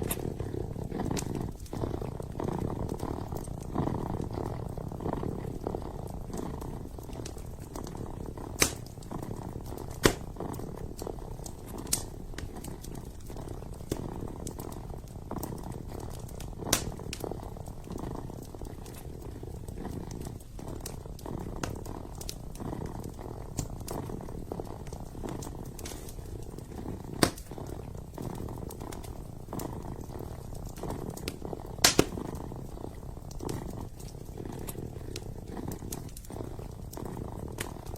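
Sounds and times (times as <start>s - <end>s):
kitten purring: 0.0s - 37.9s
wood fire crackling and popping: 0.0s - 37.9s.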